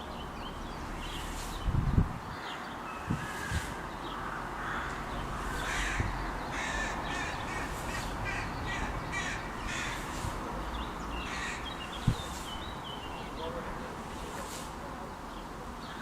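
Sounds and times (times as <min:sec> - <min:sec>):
steady background hiss: 0:00.0 - 0:16.0
crows cawing: 0:03.2 - 0:10.2, 0:11.2 - 0:11.9.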